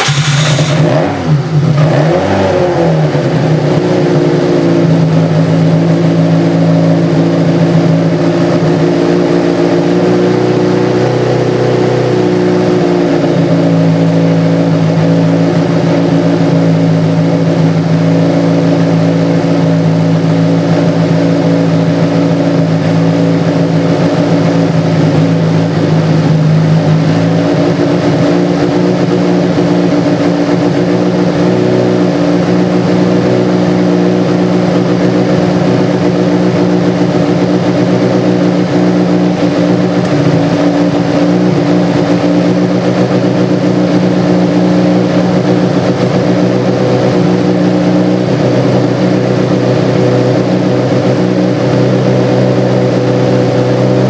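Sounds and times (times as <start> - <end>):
race car engine idling: 0.0 - 54.0.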